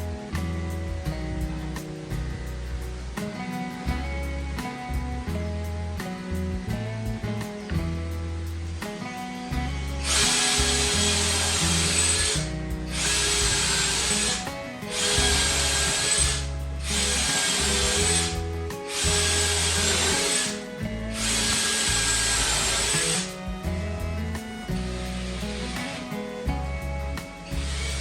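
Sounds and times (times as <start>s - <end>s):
background music: 0.0s - 28.0s
electric power tool whining: 8.5s - 28.0s.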